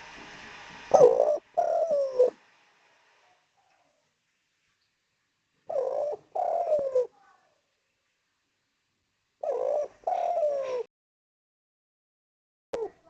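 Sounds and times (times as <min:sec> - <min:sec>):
dove cooing: 0:00.9 - 0:02.4, 0:05.7 - 0:07.2, 0:09.4 - 0:10.9, 0:12.8 - 0:13.0.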